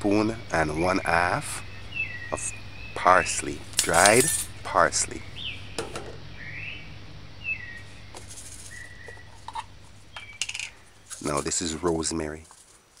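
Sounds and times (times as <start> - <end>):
bird chirping sliding calls: 1.6 - 11.6.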